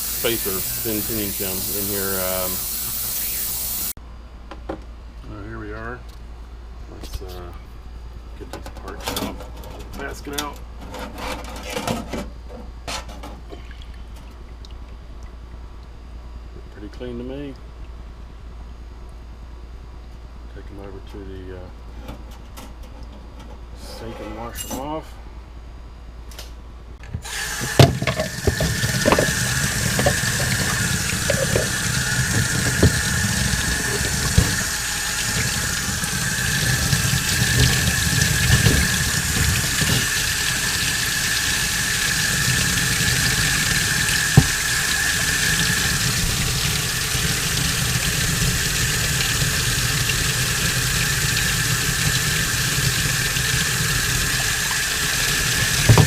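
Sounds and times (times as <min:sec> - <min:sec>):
tap water running into sink: 0:27.3 - 0:56.0
metal parts knocking: 0:27.7 - 0:33.0.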